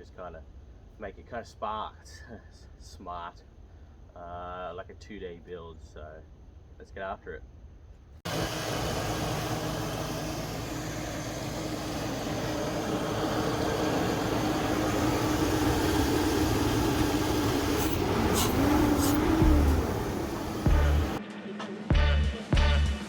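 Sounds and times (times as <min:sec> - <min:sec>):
vehicle engine running: 0:08.3 - 0:21.2.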